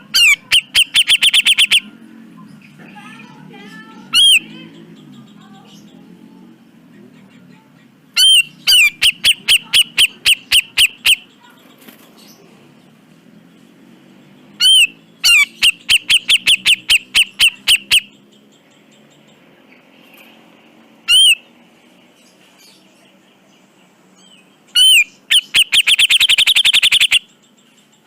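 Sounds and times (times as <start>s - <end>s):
bird calling in sharp notes: 0.0s - 2.0s, 4.0s - 4.8s, 8.2s - 11.3s, 14.6s - 18.2s, 21.1s - 21.5s, 24.7s - 27.4s.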